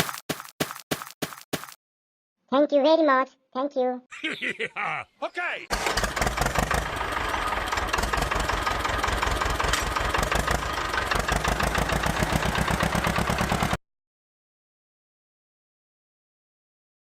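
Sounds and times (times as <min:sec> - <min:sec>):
tractor engine idling: 0:05.7 - 0:13.8.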